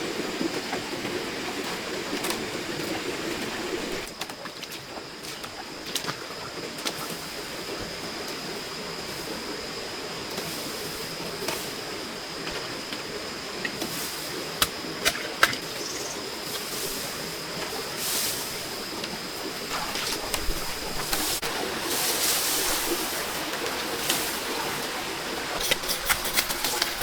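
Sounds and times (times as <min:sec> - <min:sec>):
rain hissing: 0:16.1 - 0:27.0.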